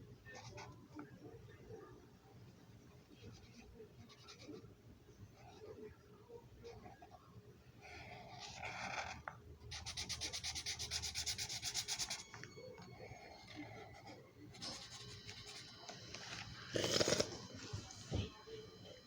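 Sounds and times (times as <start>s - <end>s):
marker scribbling on paper: 9.7s - 12.3s.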